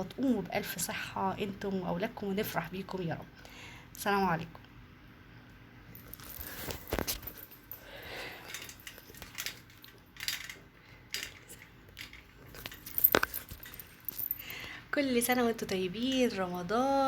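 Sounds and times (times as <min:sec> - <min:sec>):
handling clicks and knocks: 0:08.5 - 0:14.5.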